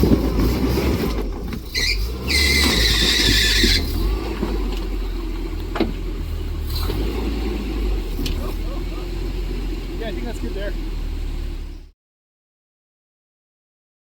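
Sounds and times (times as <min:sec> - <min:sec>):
truck engine rumbling: 0:00.0 - 0:11.9
high-pitched squeal: 0:01.6 - 0:05.4
brief squeak: 0:01.7 - 0:03.9.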